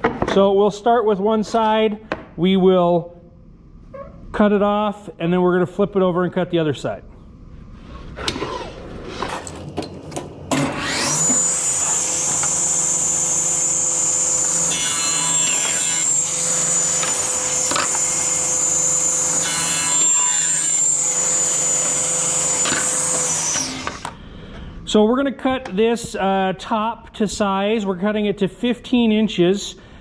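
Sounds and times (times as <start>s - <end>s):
table saw whining: 8.1s - 24.2s
saw blade cutting wood: 10.5s - 24.2s.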